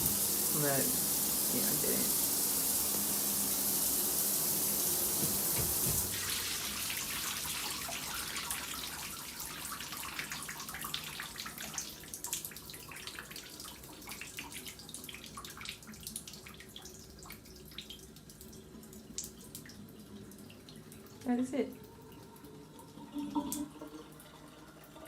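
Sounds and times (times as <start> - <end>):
shower head spraying: 0.0 - 6.2
water dripping and pattering: 0.0 - 25.0.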